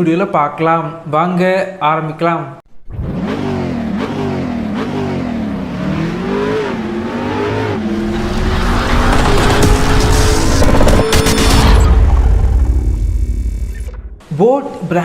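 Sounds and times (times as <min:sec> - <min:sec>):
car engine revving: 0:02.8 - 0:14.2.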